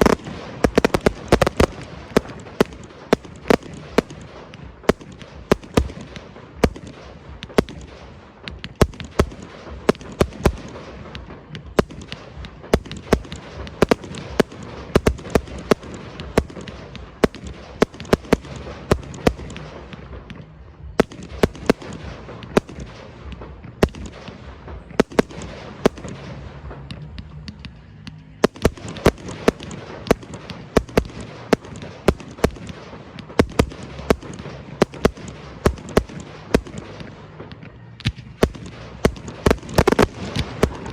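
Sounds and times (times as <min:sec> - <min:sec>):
firework shell bursts: 0:00.0 - 0:07.9, 0:38.0 - 0:40.9
crackling rumble: 0:00.0 - 0:40.9.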